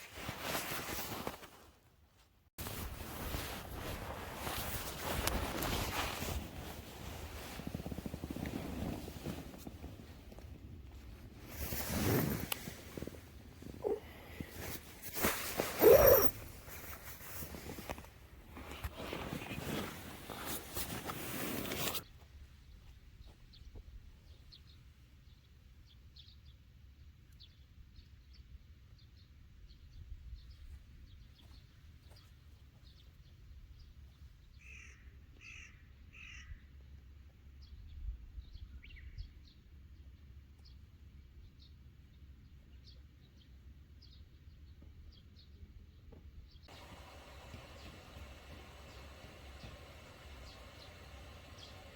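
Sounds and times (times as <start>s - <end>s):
small birds chirping: 11.5s - 18.0s, 46.5s - 51.9s.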